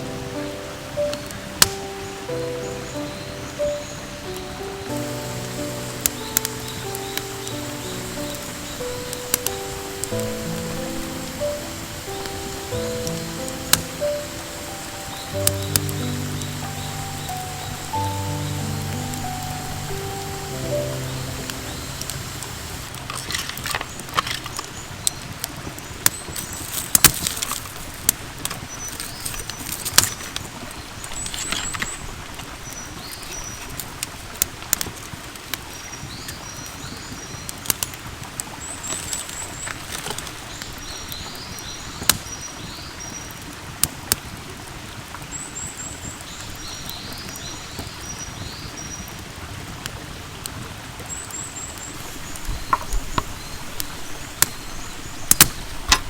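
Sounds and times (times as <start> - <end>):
birds chirping: 0.0 - 26.7, 51.0 - 56.0
steady hiss: 0.0 - 56.0
campfire crackles and pops: 0.1 - 36.6.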